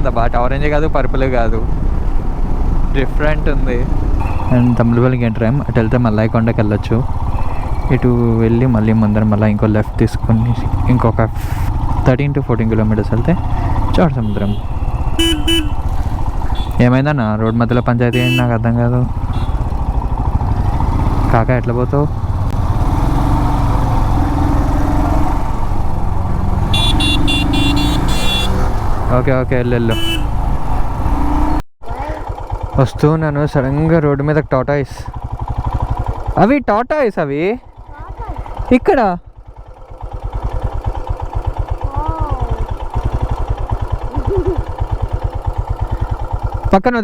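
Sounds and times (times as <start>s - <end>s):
road noise: 0.0s - 46.7s
motorcycle engine running: 0.0s - 47.0s
vehicle horn beeping: 4.2s - 5.5s, 13.2s - 19.9s, 26.6s - 28.9s, 29.6s - 30.5s.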